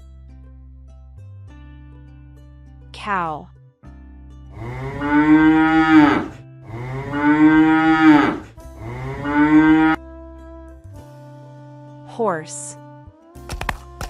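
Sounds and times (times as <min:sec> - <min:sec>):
cow mooing: 0:04.6 - 0:10.0.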